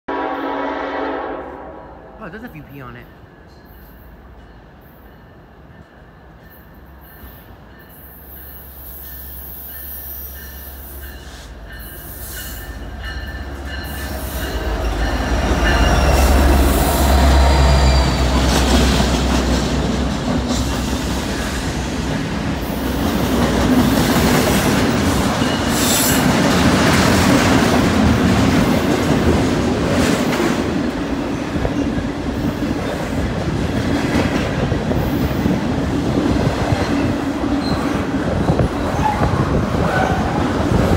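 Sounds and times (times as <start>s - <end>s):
train wheels squealing: 3.5s - 18.5s, 37.6s - 40.3s.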